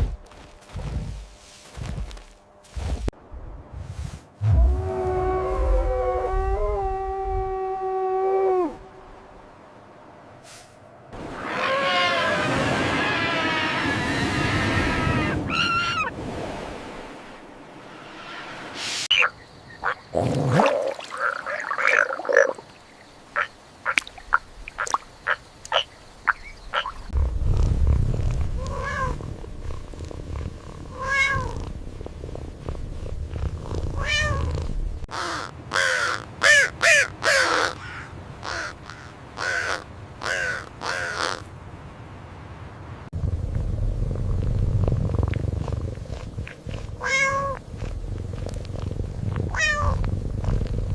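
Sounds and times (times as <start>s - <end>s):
low rumble: 2.8s - 7.6s, 27.0s - 35.1s, 43.1s - 47.0s, 47.6s - 50.9s
cat meowing: 28.6s - 29.2s, 30.9s - 31.6s, 34.0s - 34.5s, 47.0s - 47.6s, 49.5s - 50.0s.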